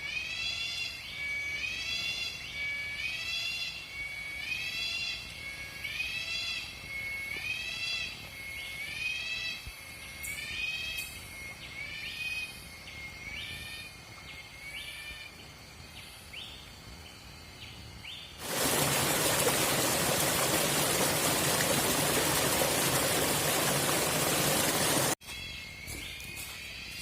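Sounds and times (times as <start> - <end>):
loud rushing noise: 18.4 - 25.2.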